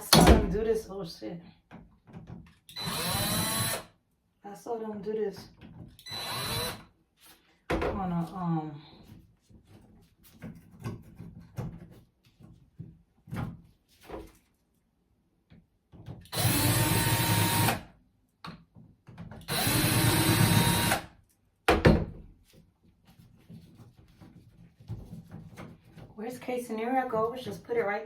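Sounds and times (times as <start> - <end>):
power drill whining: 2.7 - 3.9, 6.0 - 6.9, 16.3 - 17.9, 19.5 - 21.1.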